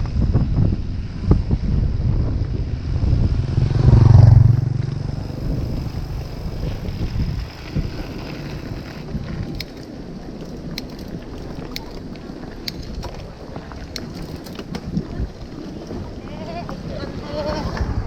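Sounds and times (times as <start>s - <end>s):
wind rumble on microphone: 0.0s - 18.0s
motor vehicle passing: 2.1s - 9.5s.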